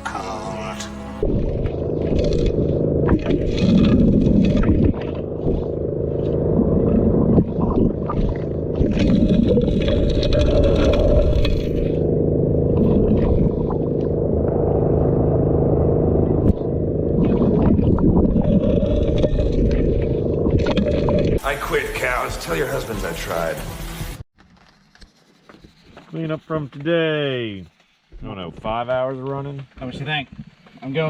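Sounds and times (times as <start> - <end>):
dredge engine running: 0.0 - 24.2.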